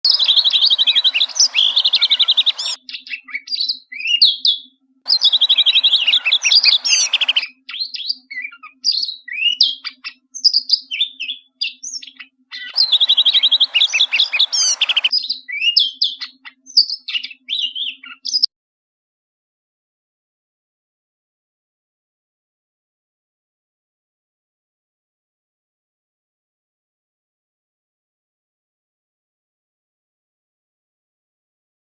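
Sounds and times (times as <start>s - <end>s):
bird singing: 0.0s - 18.5s.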